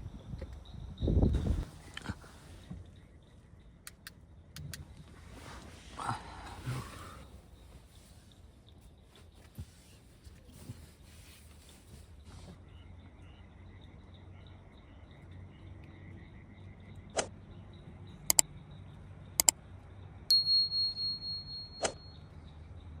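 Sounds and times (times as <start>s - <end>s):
sharp clicks: 3.8s - 4.9s, 18.3s - 18.5s
faint high chirping: 12.6s - 23.0s
pulsing high chime tone: 20.3s - 22.2s.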